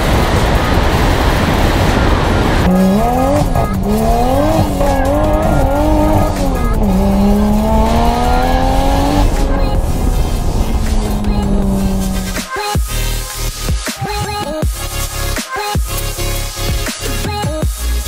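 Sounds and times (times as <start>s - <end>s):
car engine revving: 0.0s - 13.8s
wind and road noise: 0.0s - 14.3s.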